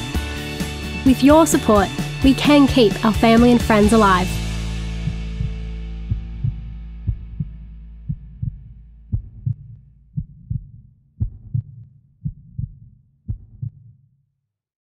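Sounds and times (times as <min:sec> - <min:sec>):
heartbeat thumps: 0:03.3 - 0:13.9.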